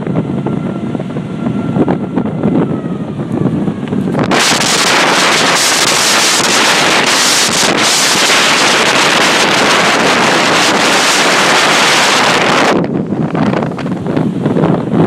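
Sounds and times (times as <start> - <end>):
strong wind on microphone: 0.0 - 15.0
heavy surf rushing: 4.0 - 15.0.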